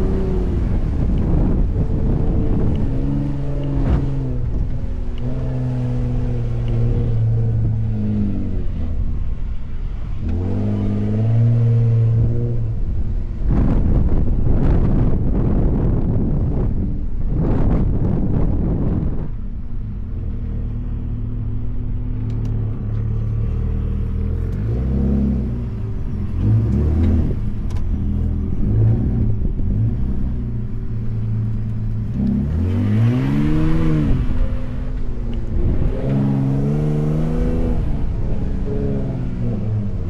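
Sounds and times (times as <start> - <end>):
truck engine revving: 0.0 - 9.3, 20.2 - 40.0.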